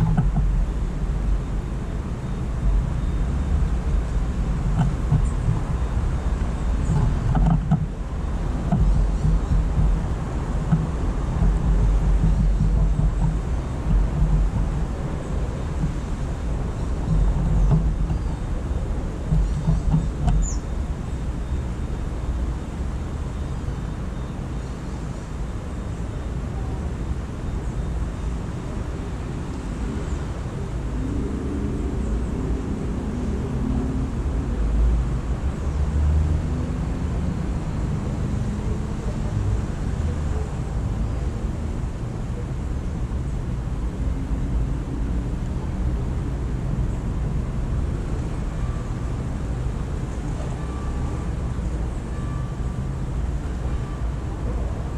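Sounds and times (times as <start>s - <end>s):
distant city traffic rumble: 0.0s - 54.9s
engine hum: 0.0s - 54.9s
faint high bird chirps: 19.4s - 21.6s.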